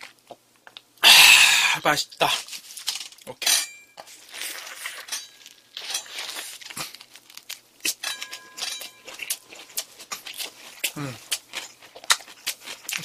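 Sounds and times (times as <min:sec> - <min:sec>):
person chewing with wet smacks: 0:00.0 - 0:01.0, 0:05.8 - 0:13.0.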